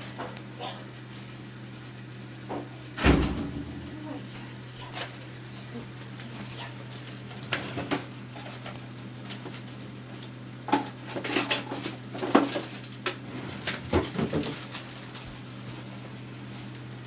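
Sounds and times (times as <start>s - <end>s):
steady low hum: 0.0s - 17.0s
dishes and cutlery clattering: 11.1s - 12.6s.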